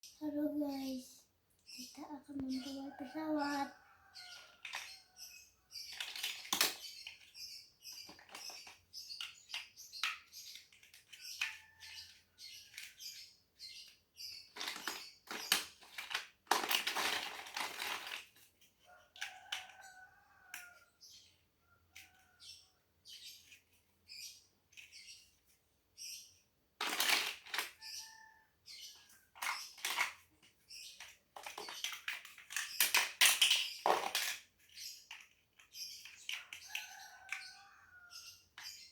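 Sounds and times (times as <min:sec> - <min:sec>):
plastic bricks clattering and clicking: 0:04.3 - 0:19.8, 0:26.8 - 0:28.0, 0:29.0 - 0:37.4.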